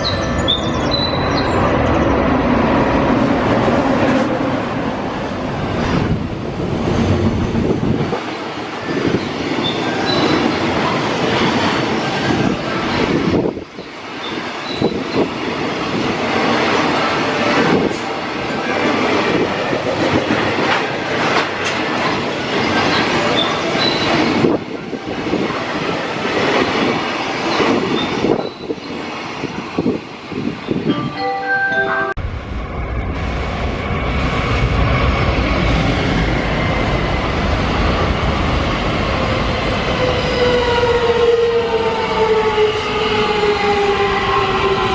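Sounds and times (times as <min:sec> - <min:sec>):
train wheels rumbling on rails: 0:00.0 - 0:30.9, 0:32.2 - 0:44.9
clacking over rail joints: 0:19.9 - 0:22.3.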